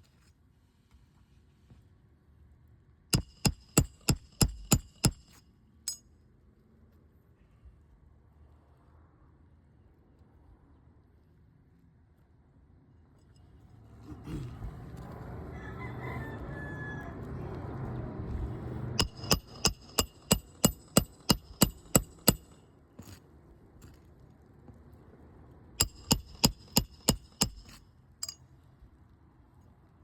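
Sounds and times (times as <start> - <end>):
hammer driving nails into shingle: 3.2 - 6.0, 19.0 - 23.2, 25.8 - 28.4
rooster crowing: 15.4 - 17.8.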